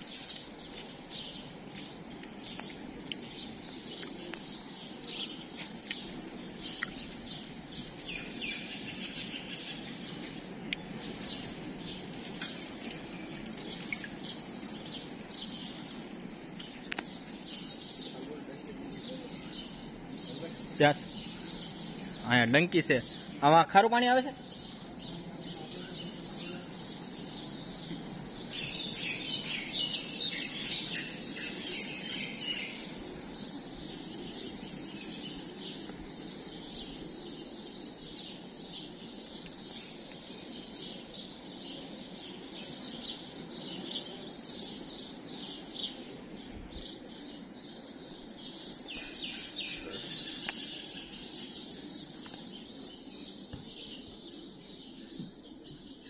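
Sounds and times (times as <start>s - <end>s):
low background noise: 0.0s - 56.0s
small birds chirping: 0.0s - 56.0s.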